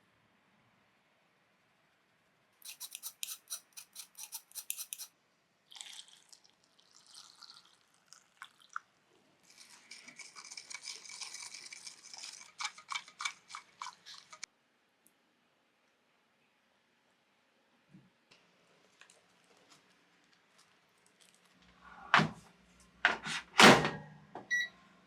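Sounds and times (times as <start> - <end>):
utensil scraping plastic container: 2.6 - 5.1.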